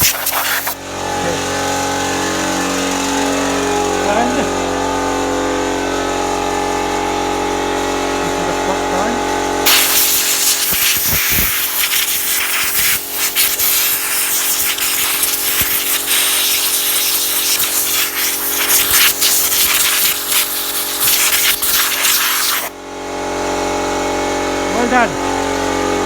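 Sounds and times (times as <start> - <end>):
compressed air blow gun hissing: 0.0 - 0.8, 9.7 - 22.7.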